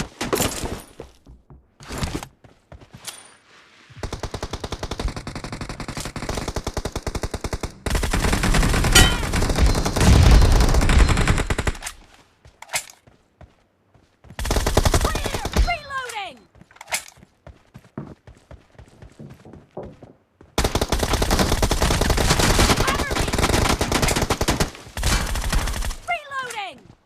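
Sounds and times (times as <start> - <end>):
video game automatic gunfire: 4.0 - 11.8, 20.6 - 26.1.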